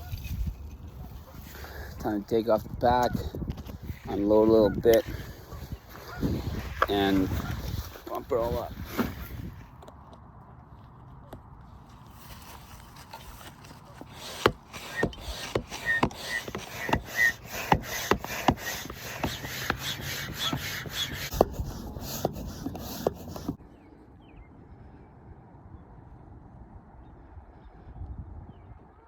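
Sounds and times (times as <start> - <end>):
hand pump strokes: 3.0 - 9.1, 13.1 - 23.6.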